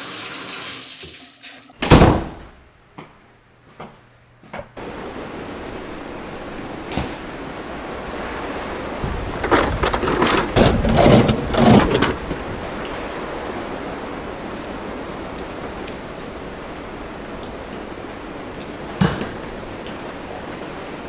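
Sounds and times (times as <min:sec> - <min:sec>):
heavy rain hissing: 0:04.8 - 0:09.9, 0:11.9 - 0:21.0.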